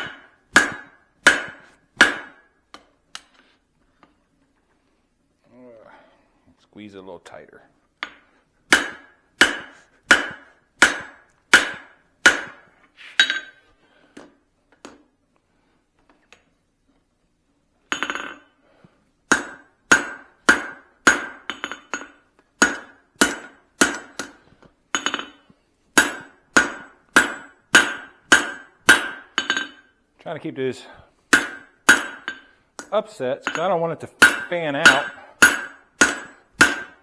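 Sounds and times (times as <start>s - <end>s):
hammer striking hot steel on anvil: 0.0s - 2.6s, 8.0s - 13.6s, 17.9s - 18.4s, 19.3s - 25.4s, 26.0s - 30.0s, 31.3s - 37.0s.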